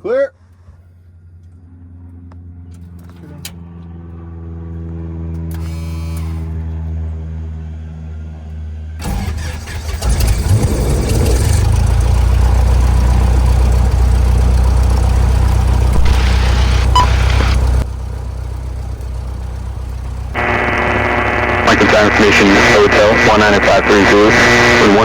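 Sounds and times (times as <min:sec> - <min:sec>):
aircraft engine running: 0:00.5 - 0:25.0
starter cranking engine: 0:09.0 - 0:17.8.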